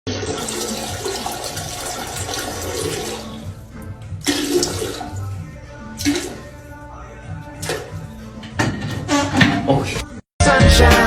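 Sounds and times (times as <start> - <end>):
water rushing: 0.1 - 5.4.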